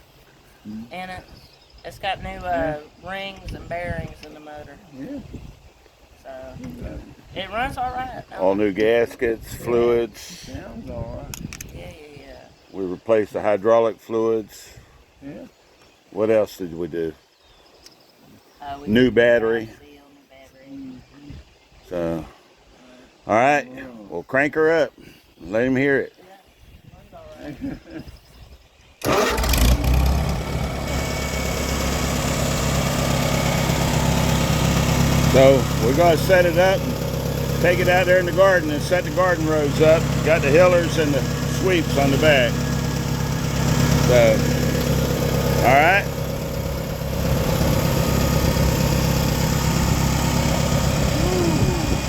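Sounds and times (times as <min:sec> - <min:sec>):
tractor engine idling: 0:29.0 - 0:52.0.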